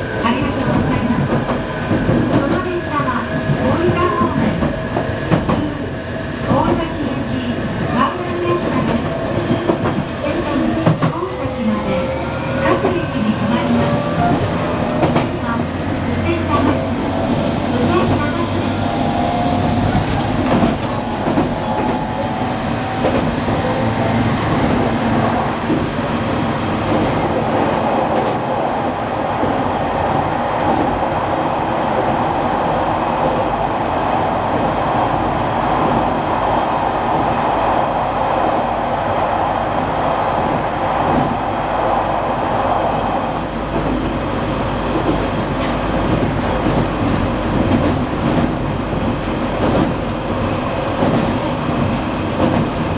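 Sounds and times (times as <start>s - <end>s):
train running rumble: 0.0s - 52.9s
wheels clacking over rail joints: 43.4s - 52.9s.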